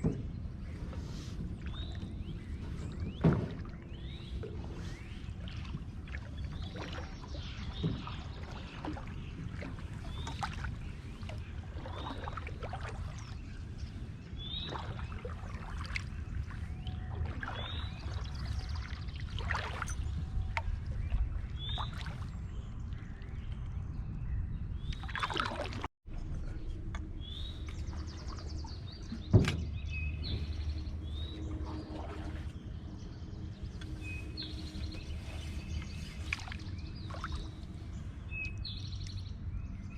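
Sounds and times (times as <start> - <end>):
paddle strokes in water: 0.0 - 23.6, 24.9 - 32.9, 33.5 - 39.2
water dripping and splashing: 2.7 - 22.3, 24.9 - 25.9, 26.9 - 32.6, 33.8 - 39.2
low rumble: 26.1 - 39.9.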